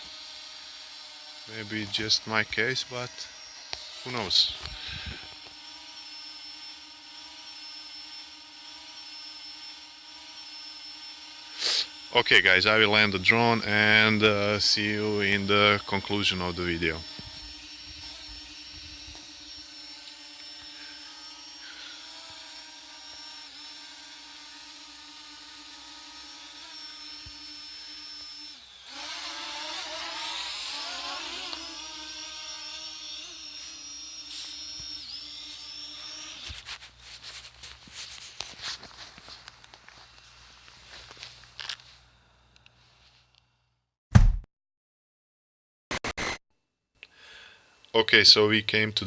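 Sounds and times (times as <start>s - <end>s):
drone motors whining: 0.0s - 12.2s, 13.0s - 36.6s.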